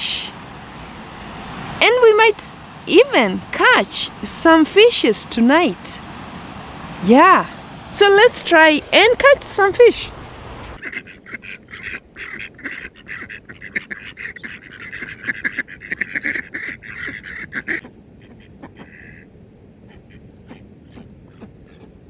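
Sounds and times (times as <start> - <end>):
ducks quacking: 1.6 - 17.9.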